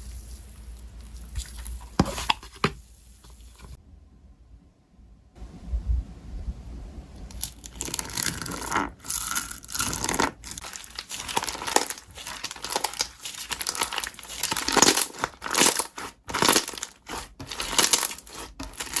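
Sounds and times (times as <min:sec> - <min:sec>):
slime crackling and popping: 0:07.3 - 0:19.0.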